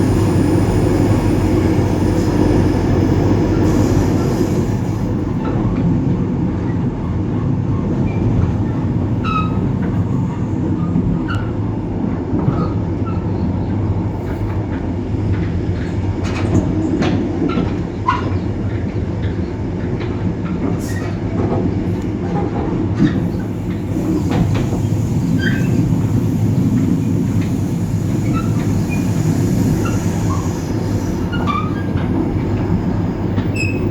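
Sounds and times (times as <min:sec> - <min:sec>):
diesel locomotive engine running: 0:00.0 - 0:18.0, 0:18.6 - 0:33.9
wheels rumbling on rails: 0:00.0 - 0:33.9
wheel squeaks and clicks: 0:33.5 - 0:33.9.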